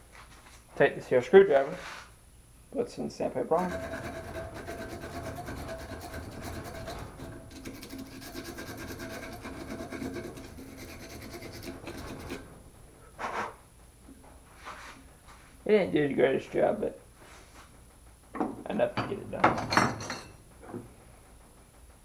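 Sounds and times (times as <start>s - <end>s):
sandpaper scrubbing rusty metal: 3.4s - 13.4s.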